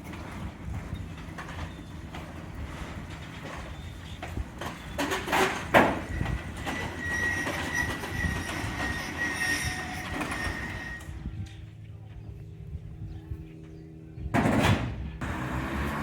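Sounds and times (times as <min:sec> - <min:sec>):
truck engine rumble: 0:00.0 - 0:16.0
high-pitched metallic squeal: 0:06.0 - 0:11.3.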